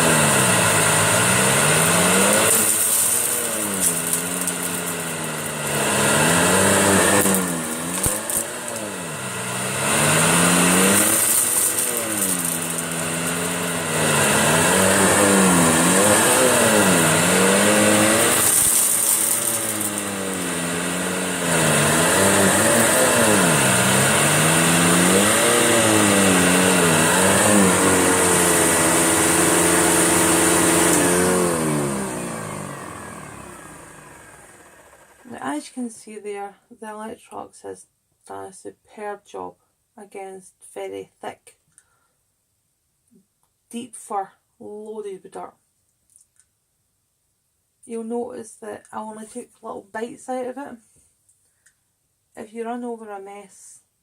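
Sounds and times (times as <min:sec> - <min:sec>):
vacuum cleaner running over a mat: 0:00.0 - 0:35.3.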